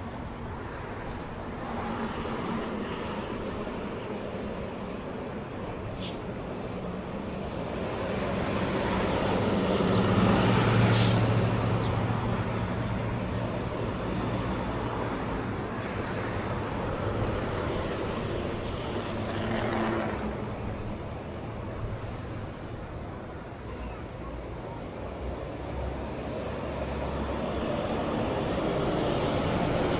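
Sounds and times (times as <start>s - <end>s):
vehicle passing by: 7.6s - 15.0s, 16.4s - 20.7s.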